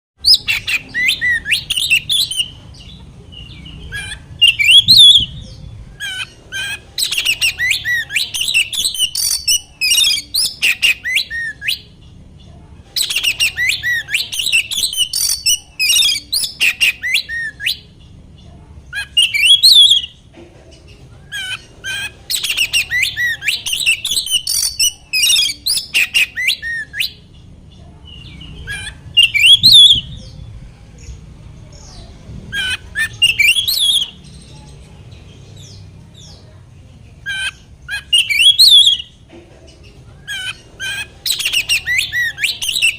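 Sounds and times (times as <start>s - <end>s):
bird singing harsh whistles: 4.4s - 5.4s, 19.1s - 20.1s, 29.1s - 30.2s, 38.0s - 39.1s.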